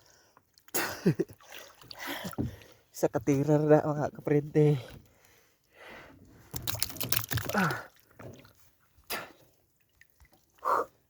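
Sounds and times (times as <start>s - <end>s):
water splashing and dripping: 6.5s - 10.6s.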